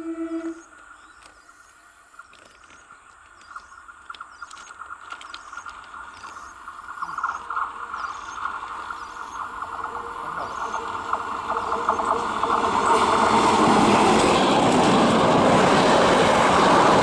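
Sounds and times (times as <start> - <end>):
train wheels rasping on rails: 5.6 - 17.0.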